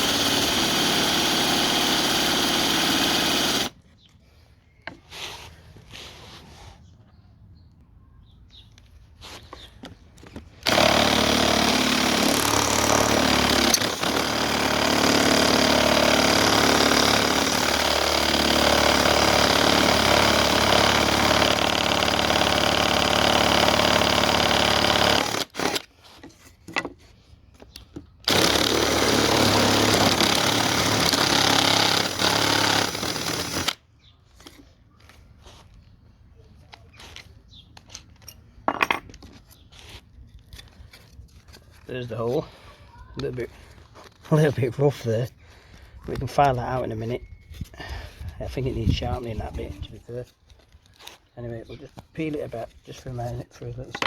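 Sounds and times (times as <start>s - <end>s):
electric drill boring wood: 0.0s - 3.7s, 10.6s - 25.9s, 28.2s - 33.8s.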